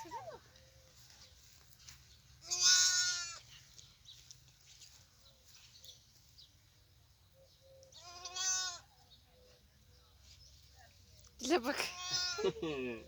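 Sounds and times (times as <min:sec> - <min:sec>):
lamb bleating: 0:02.4 - 0:03.4, 0:08.0 - 0:08.8, 0:11.8 - 0:12.4.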